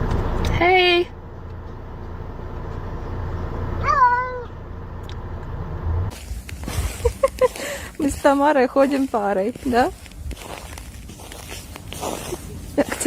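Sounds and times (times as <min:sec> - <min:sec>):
steady low rumble: 0:04.5 - 0:13.0.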